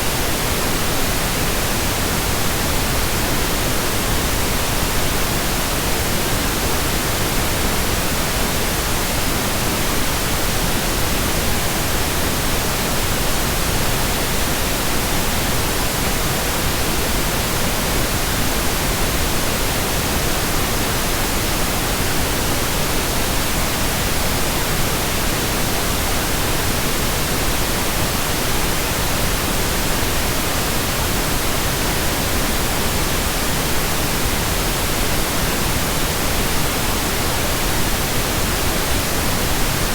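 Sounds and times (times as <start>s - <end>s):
steady pink noise hiss: 0.0s - 39.9s.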